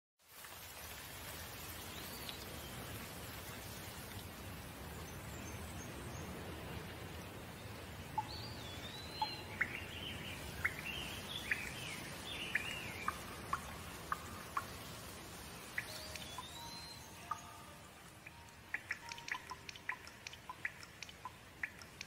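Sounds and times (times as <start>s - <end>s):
steady rain: 0.2s - 22.0s
bird chirping: 8.2s - 22.0s.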